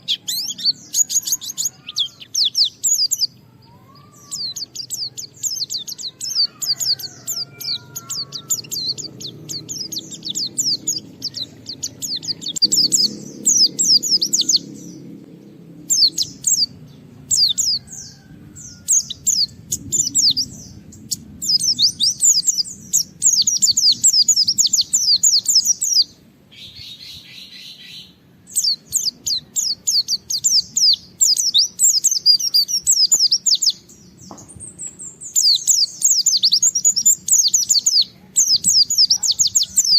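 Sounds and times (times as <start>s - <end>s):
harsh rasping bird call: 0.0s - 2.4s, 3.4s - 15.0s
bird twittering song: 0.0s - 39.9s.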